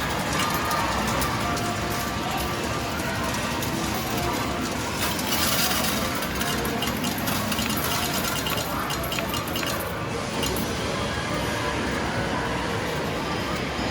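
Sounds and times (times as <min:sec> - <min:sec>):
metal medals clinking: 0:00.0 - 0:10.6.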